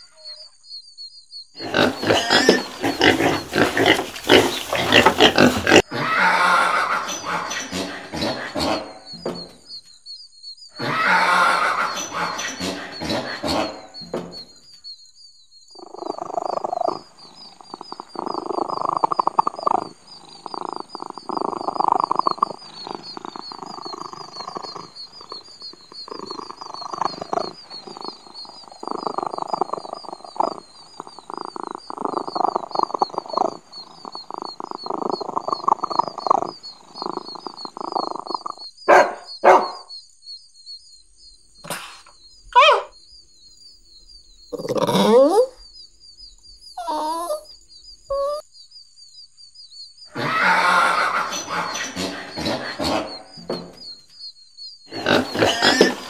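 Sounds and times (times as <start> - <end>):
cat purring: 15.8 - 38.6.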